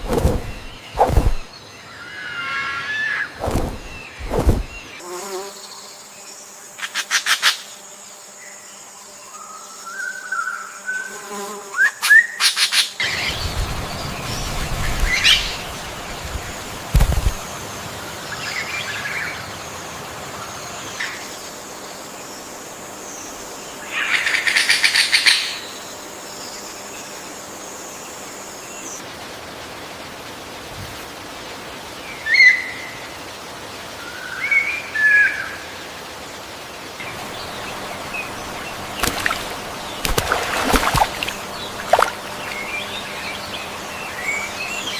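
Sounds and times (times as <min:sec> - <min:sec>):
birds chirping: 0:00.0 - 0:05.0, 0:37.0 - 0:44.9.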